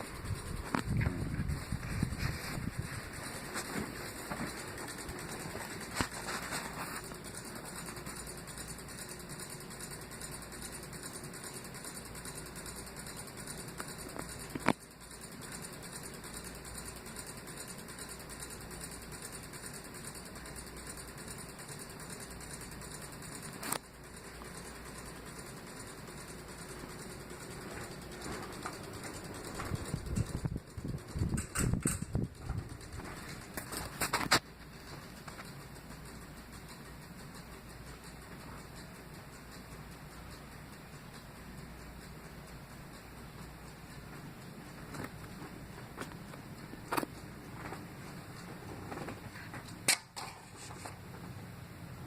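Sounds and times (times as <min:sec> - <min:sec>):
ceiling fan whooshing: 0:00.0 - 0:52.0.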